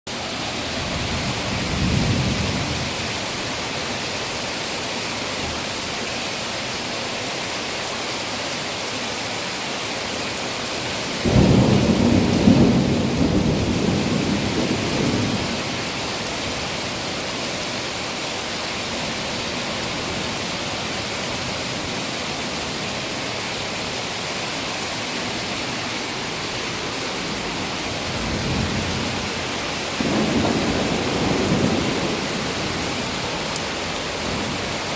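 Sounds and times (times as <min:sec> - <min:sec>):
heavy rain: 0:00.1 - 0:34.9
thunder rumbling: 0:00.7 - 0:03.2, 0:11.2 - 0:15.9, 0:26.7 - 0:34.9
thunder crack: 0:30.0 - 0:33.1.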